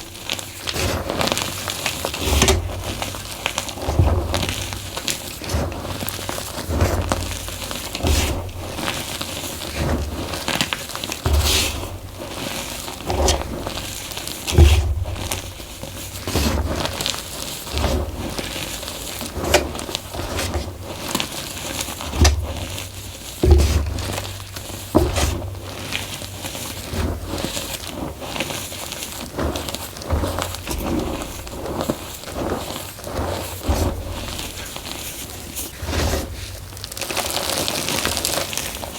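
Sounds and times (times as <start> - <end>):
chalk crunching by hand: 0.0 - 38.9
dull thumps against bowl: 22.1 - 25.7.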